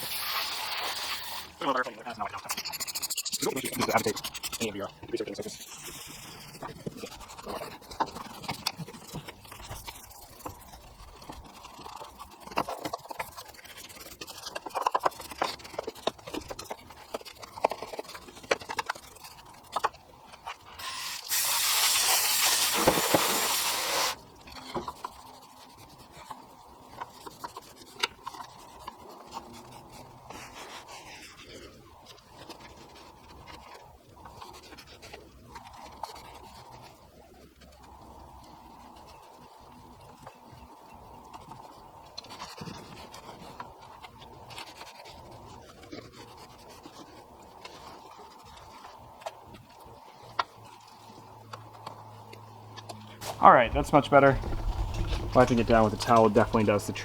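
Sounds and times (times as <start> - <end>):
spray hiss: 0.0 - 1.5, 20.8 - 24.2
brush scraping plastic and metal: 0.0 - 19.9, 20.6 - 26.0, 53.2 - 57.0.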